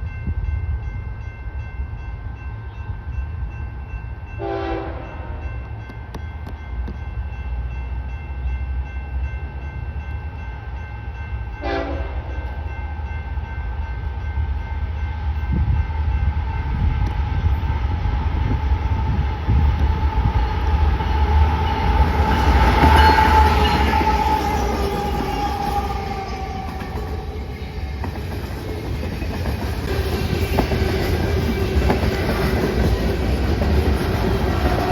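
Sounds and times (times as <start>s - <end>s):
train rumbling: 0.0s - 34.9s
train horn blast: 4.4s - 5.5s, 11.6s - 12.5s, 19.6s - 27.8s.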